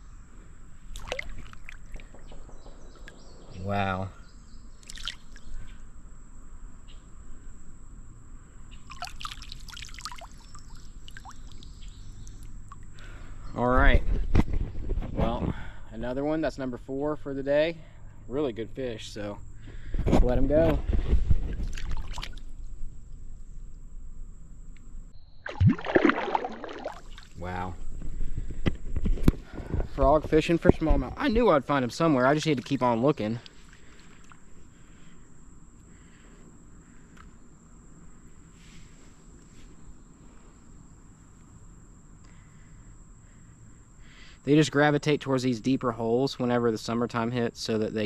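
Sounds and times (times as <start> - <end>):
creek water trickling: 0.8 - 3.4, 4.5 - 5.8, 8.7 - 13.5, 21.6 - 22.5, 25.4 - 27.6, 31.4 - 34.6
small water splashes: 0.9 - 2.1, 4.8 - 5.5, 8.8 - 13.0, 21.6 - 22.4, 25.4 - 27.5.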